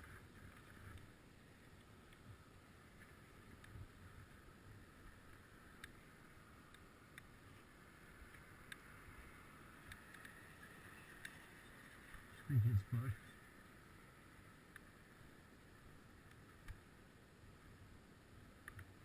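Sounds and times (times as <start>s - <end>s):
faint low rumble: 0.0s - 19.0s
faint clicks: 5.0s - 12.4s, 14.6s - 15.0s, 16.2s - 16.9s, 18.6s - 19.0s.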